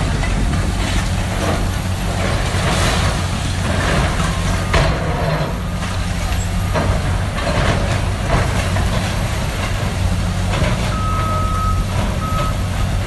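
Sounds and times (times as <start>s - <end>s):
demolition machinery engine hum: 0.0s - 13.0s
reversing alarm beeps: 4.1s - 7.1s, 10.8s - 12.7s.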